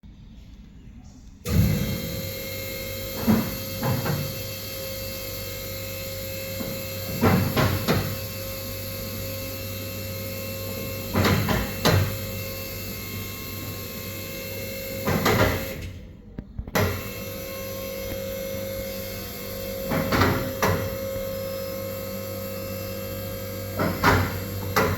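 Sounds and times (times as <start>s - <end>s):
clunks: 1.4s - 8.4s, 10.7s - 12.4s, 14.4s - 21.8s, 23.6s - 24.9s
lift motor humming: 1.4s - 24.9s.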